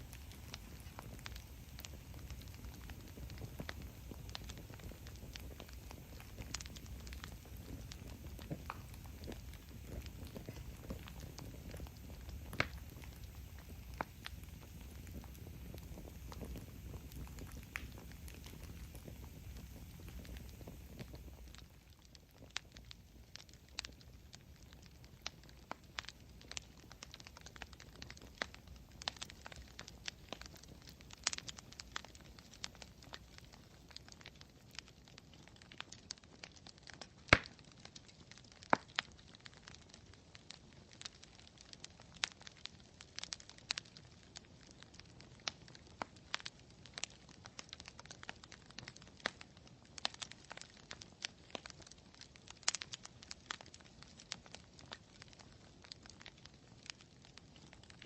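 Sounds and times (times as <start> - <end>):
faint low hiss: 0.0 - 36.2
campfire wood crackling and popping: 0.0 - 58.0.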